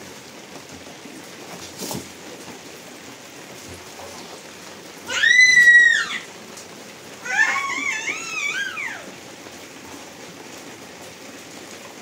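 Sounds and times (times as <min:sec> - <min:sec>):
steady rain: 0:00.0 - 0:12.0
baby wailing: 0:05.0 - 0:06.3, 0:07.2 - 0:09.2.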